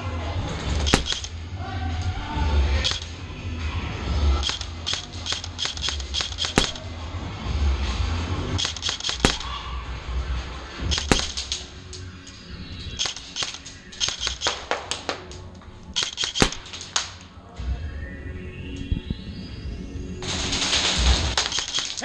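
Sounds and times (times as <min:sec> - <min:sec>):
airsoft guns firing: 0:01.0 - 0:01.4, 0:06.6 - 0:06.9, 0:09.3 - 0:09.7, 0:11.1 - 0:11.7, 0:16.4 - 0:17.1
bbs striking: 0:01.0 - 0:01.4, 0:06.6 - 0:06.9, 0:09.3 - 0:09.6, 0:11.1 - 0:11.7, 0:16.4 - 0:16.9.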